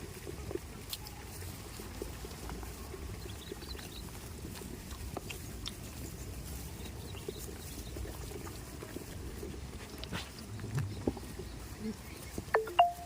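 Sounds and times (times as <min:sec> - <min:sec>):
goat hooves clicking and knocking: 0:00.0 - 0:13.0.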